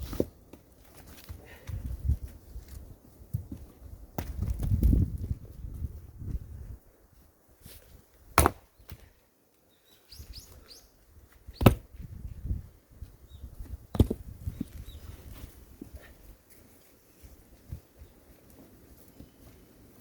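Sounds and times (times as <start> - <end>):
axe striking firewood: 4.2 - 5.0, 8.3 - 9.1, 11.6 - 12.0, 13.9 - 14.3
faint bird chirps: 9.7 - 11.6.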